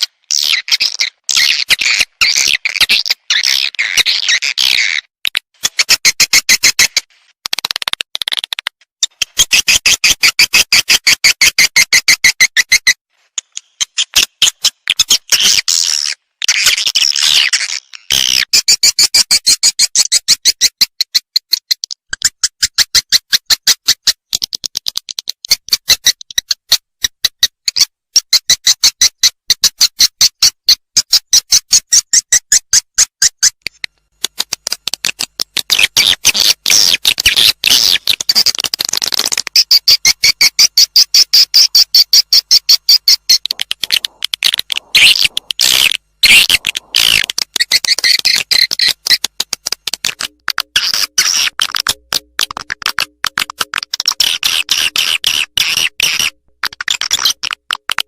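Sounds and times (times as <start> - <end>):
swiftlet chirps and twittering: 39.6 - 49.3.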